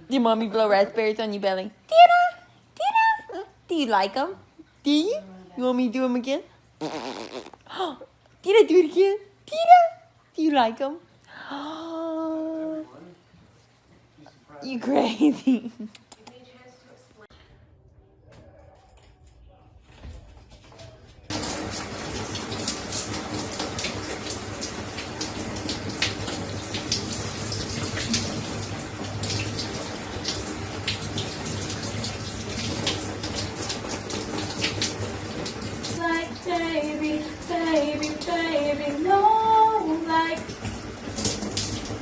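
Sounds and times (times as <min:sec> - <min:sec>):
running water: 0:21.2 - 0:42.0.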